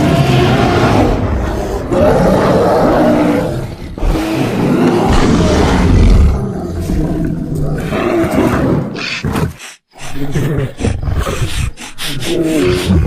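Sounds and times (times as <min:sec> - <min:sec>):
deep rough creature roars: 0:00.0 - 0:09.0.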